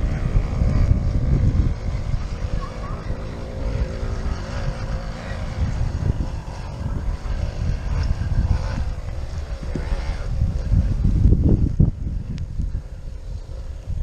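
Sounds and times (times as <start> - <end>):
faint steady whir: 0.0 - 14.0
wind buffeting microphone: 0.0 - 14.0.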